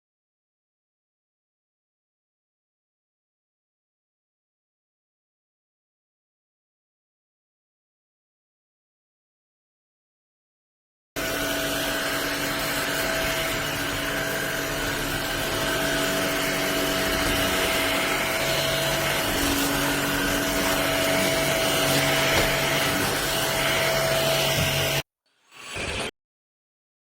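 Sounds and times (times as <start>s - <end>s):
stick vacuum running: 11.2s - 25.0s.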